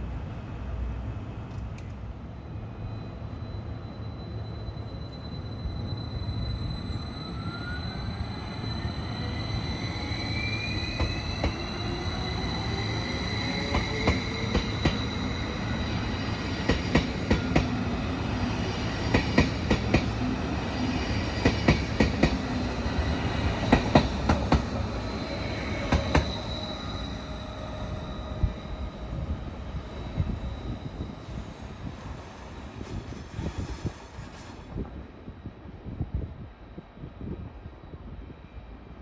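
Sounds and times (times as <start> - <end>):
train wheels clacking: 13.4 - 15.4, 16.3 - 17.8, 21.4 - 22.5, 23.5 - 24.8.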